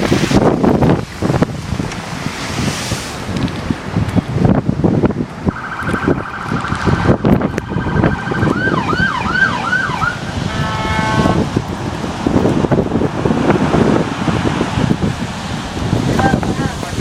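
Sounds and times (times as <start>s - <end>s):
wind buffeting microphone: 0.0s - 17.0s
emergency vehicle siren: 5.5s - 11.4s
siren horn blast: 5.5s - 11.5s.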